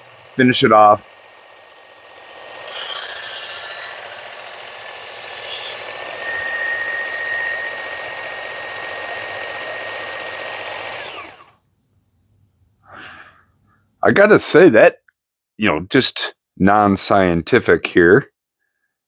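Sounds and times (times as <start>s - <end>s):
belt sharpener motor running: 0.0s - 11.6s
knife grinding hiss: 2.7s - 8.0s.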